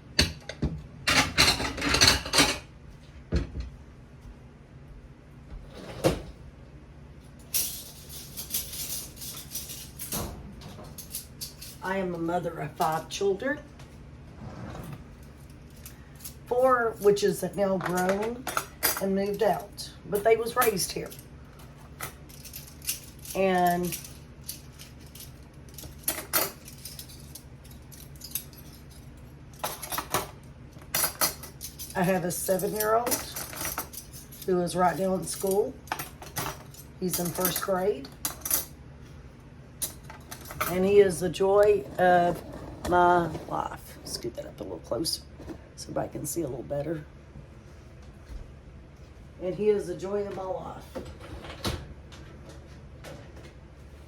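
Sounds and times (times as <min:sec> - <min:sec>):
dishes clattering: 0:00.2 - 0:02.7
cabinet door opening and closing: 0:05.6 - 0:06.4.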